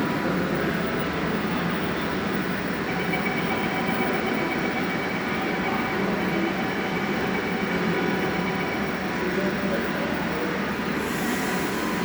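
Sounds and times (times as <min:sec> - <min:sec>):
train wheels and motors running: 0:10.6 - 0:12.0.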